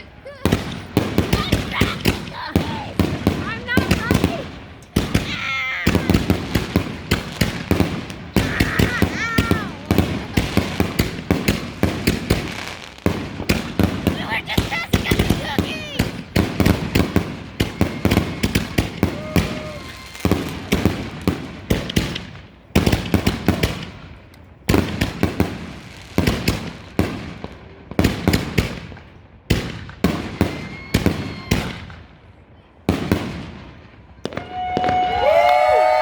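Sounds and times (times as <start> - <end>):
fireworks bangs: 0.0 - 36.0.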